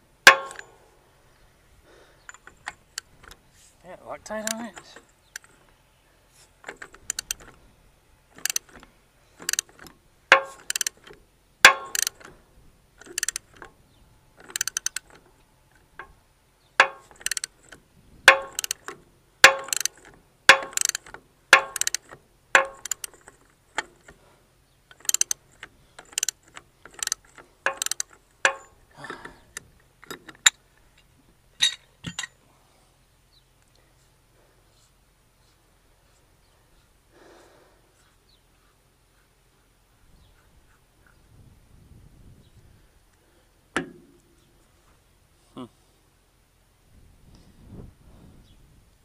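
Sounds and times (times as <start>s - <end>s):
ratchet wrench clicking: 0.3s - 0.7s, 6.7s - 7.5s, 8.4s - 8.8s, 9.4s - 12.3s, 13.0s - 13.7s, 14.4s - 15.2s, 16.8s - 24.1s, 24.9s - 28.8s.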